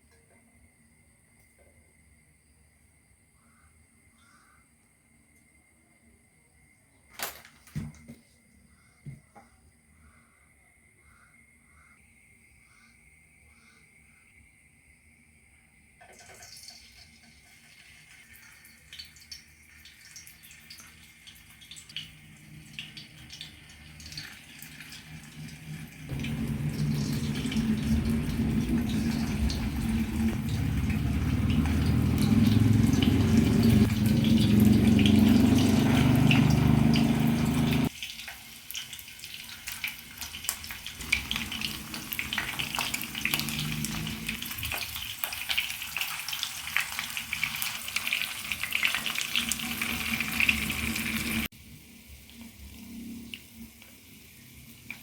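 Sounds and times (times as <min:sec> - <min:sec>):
food sizzling in a pan: 0:16.4 - 0:55.0
tap running water into a pot: 0:22.8 - 0:51.5.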